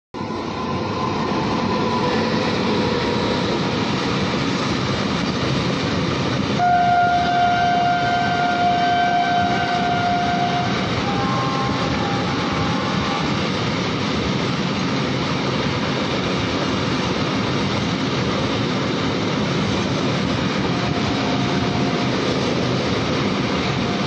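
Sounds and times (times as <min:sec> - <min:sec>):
freight train rumbling: 0:00.1 - 0:24.0
locomotive horn tone: 0:06.6 - 0:13.4, 0:20.6 - 0:22.4, 0:23.6 - 0:24.0.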